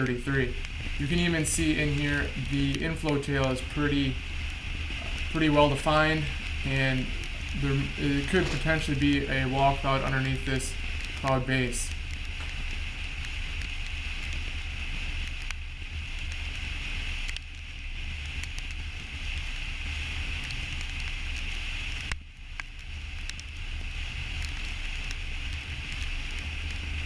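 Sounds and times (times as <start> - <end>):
car road and wind noise: 0.0 - 27.0
faint clicks: 2.2 - 14.4, 16.2 - 17.6.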